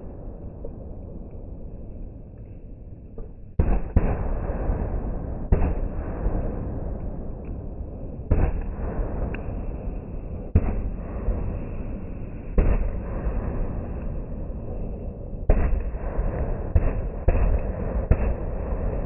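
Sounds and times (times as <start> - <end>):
fireworks bangs with rumble: 3.2 - 7.5, 8.2 - 14.8, 15.4 - 19.0.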